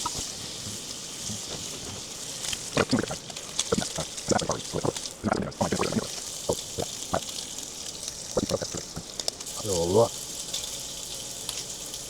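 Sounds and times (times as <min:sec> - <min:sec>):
fat popping and crackling: 0:00.0 - 0:07.4, 0:08.0 - 0:09.5
bacon sizzling in a pan: 0:00.0 - 0:12.0.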